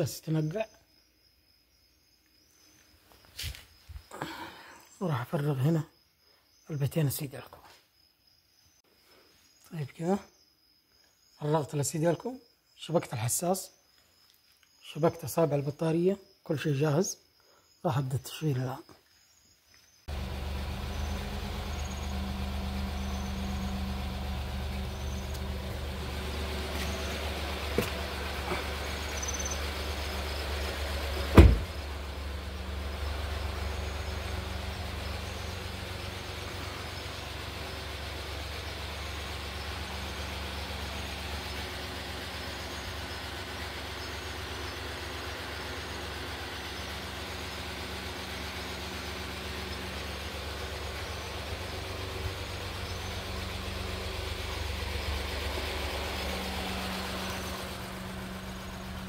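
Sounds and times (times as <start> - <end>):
car engine idling: 20.1 - 59.0.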